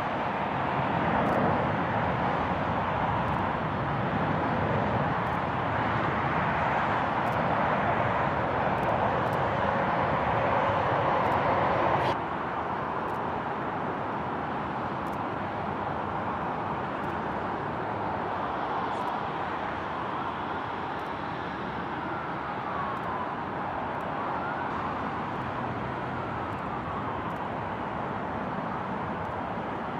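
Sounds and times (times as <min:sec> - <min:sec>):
vehicle traffic roar: 0:00.0 - 0:29.9
faint siren: 0:18.2 - 0:29.9.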